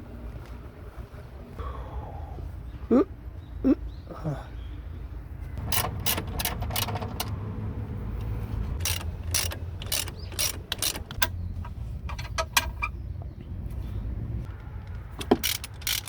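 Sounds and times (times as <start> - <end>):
socket ratchet clicking: 5.6 - 7.4, 8.8 - 11.4, 15.2 - 16.0.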